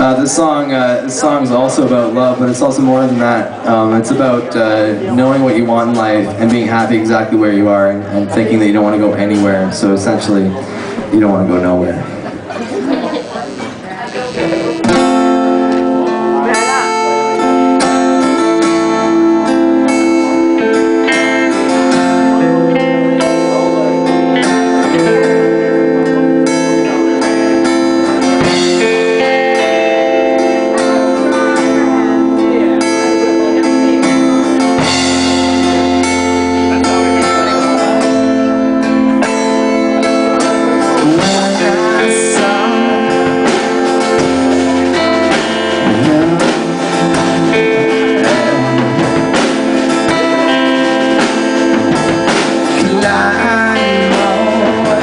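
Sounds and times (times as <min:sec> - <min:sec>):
guitar: 0:00.0 - 0:55.0
live band playing: 0:00.0 - 0:55.0.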